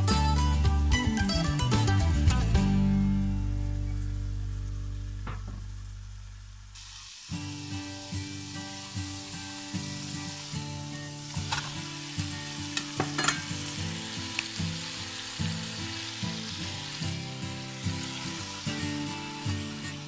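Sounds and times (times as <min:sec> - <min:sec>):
faint background music: 0:00.0 - 0:20.0
food sizzling in oil: 0:06.3 - 0:20.0
spatula clattering in wok: 0:12.8 - 0:13.7.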